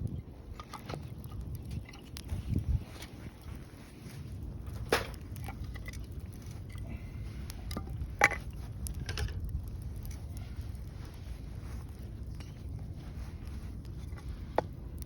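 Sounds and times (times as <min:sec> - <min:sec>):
low steady rumble: 0:00.0 - 0:15.0
wood fire crackling: 0:00.0 - 0:15.0
sharp pops of fire: 0:04.3 - 0:14.8.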